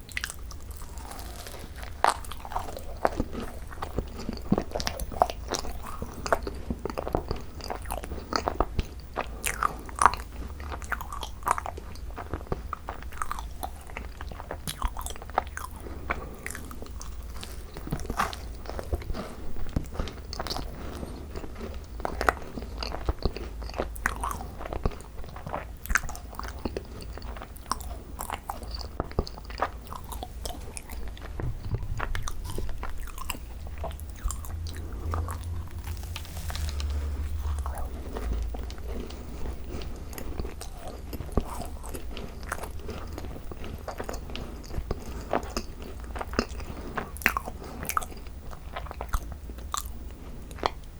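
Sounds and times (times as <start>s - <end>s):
chewing crisp macarons: 0.0s - 50.9s
wet mouth sounds: 29.9s - 42.8s.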